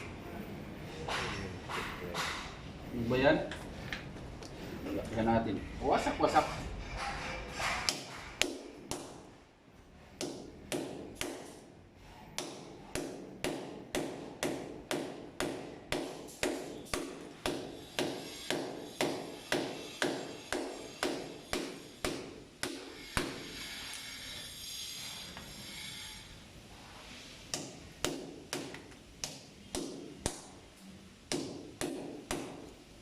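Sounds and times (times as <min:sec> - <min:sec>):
hammer blows ringing: 0:12.3 - 0:24.4.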